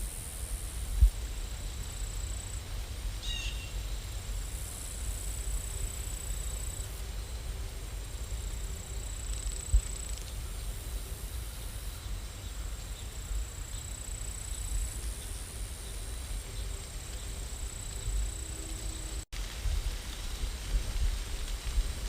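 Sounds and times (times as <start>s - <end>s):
rain hiss: 0.0s - 22.0s.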